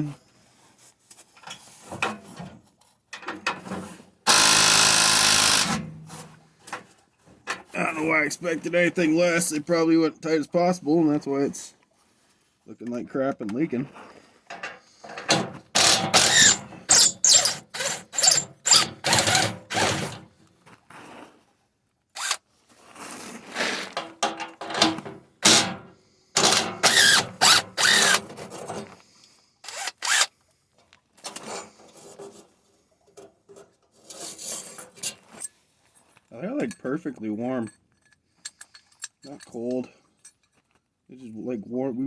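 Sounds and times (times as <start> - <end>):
power tool loosening bolts: 4.3 - 6.1, 14.6 - 20.3, 22.2 - 22.4, 24.2 - 28.8, 29.6 - 30.3, 38.4 - 39.2.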